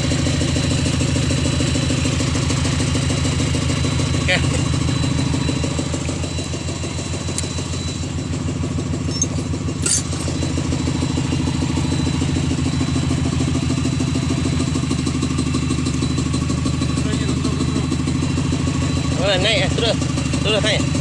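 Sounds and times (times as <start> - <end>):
engine idling: 0.0 - 21.0
sharp metallic clink: 9.1 - 10.4.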